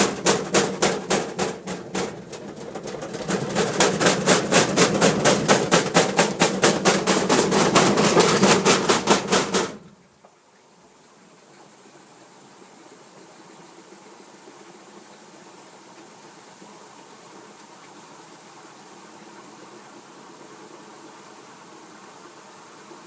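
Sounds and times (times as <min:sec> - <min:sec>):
washing machine drum banging: 0:00.0 - 0:09.9.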